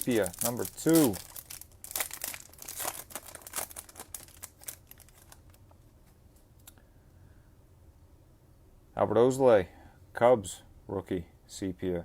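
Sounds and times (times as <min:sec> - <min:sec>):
wrapper crinkling and tearing: 0:00.0 - 0:05.6.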